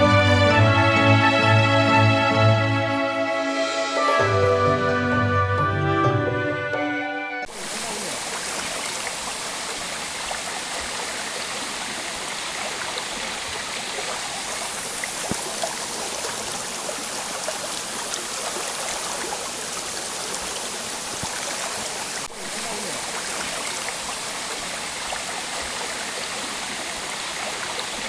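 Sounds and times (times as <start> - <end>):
water rushing and splashing: 7.5 - 28.0.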